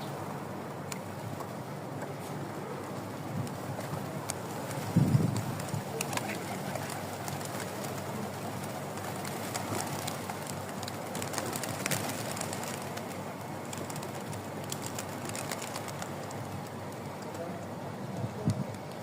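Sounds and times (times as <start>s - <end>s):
outdoor background noise: 0.0s - 19.0s
pigeons cooing: 2.0s - 16.6s.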